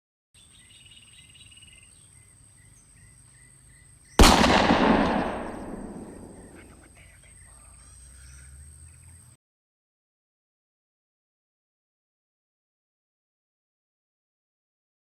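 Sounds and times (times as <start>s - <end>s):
faint high insect trill: 0.4s - 4.2s, 5.4s - 9.4s
loud bang: 4.2s - 6.7s.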